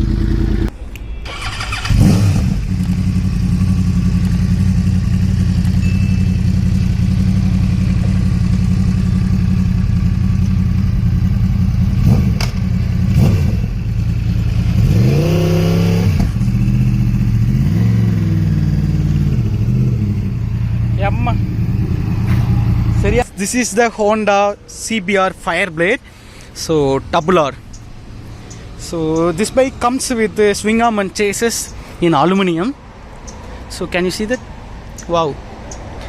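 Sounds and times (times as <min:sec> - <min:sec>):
motorcycle engine idling and revving: 0:00.0 - 0:00.7, 0:01.3 - 0:23.6.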